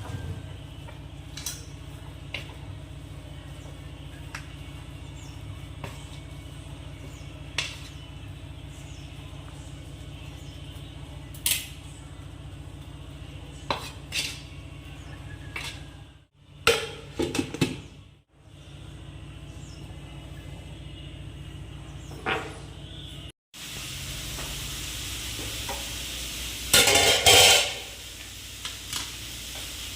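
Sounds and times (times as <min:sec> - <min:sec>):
metal utensils and pots clinking: 0:13.7 - 0:14.6, 0:15.4 - 0:16.0, 0:26.7 - 0:28.0.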